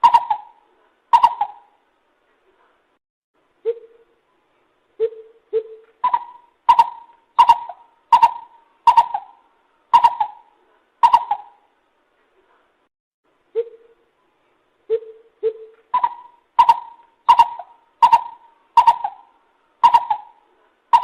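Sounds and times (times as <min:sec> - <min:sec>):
coucal hooting: 0:00.0 - 0:01.8, 0:05.0 - 0:11.7, 0:13.5 - 0:14.0, 0:14.9 - 0:21.0.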